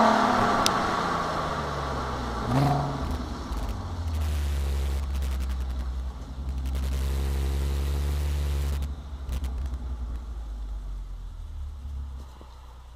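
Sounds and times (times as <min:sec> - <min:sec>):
car engine and exhaust droning: 0:00.0 - 0:12.9.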